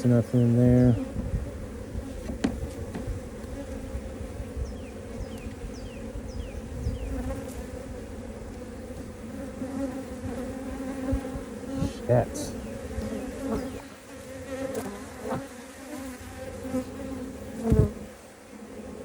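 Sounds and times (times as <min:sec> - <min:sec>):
honeybees buzzing: 0:00.0 - 0:19.0.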